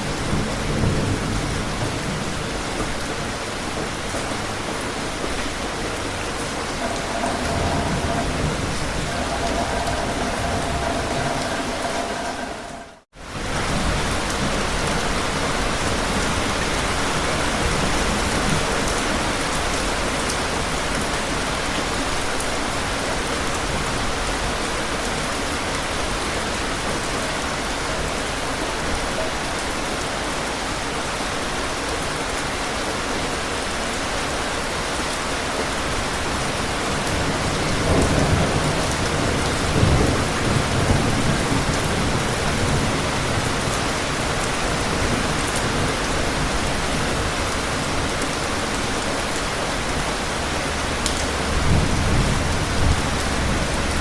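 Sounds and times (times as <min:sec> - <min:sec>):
thunder rumbles: 0:00.0 - 0:16.5, 0:37.0 - 0:49.0, 0:49.8 - 0:54.0
heavy rain falling: 0:00.0 - 0:54.0.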